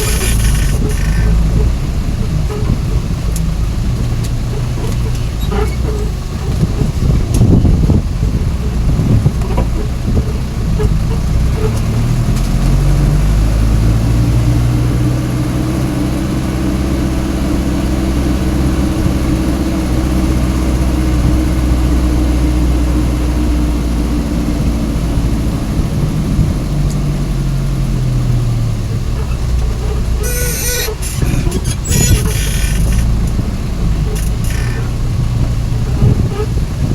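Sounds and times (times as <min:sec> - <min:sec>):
truck engine running: 0:00.0 - 0:36.9.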